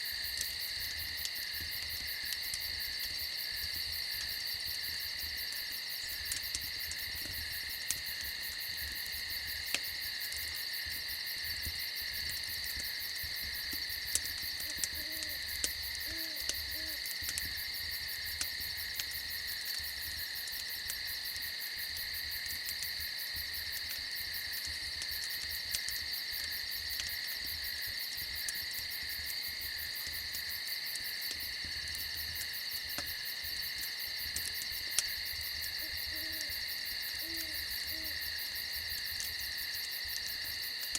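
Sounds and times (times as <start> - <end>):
campfire crackling: 0.0 - 40.9
crickets chirring: 0.0 - 40.9
owl hooting: 14.6 - 15.4, 16.0 - 17.0, 35.8 - 36.5, 37.2 - 38.2.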